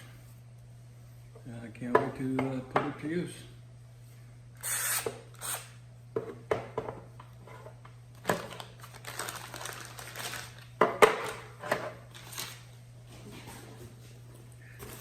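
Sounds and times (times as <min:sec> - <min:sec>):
crinkly bag rustling: 0:08.3 - 0:10.8, 0:12.1 - 0:12.7.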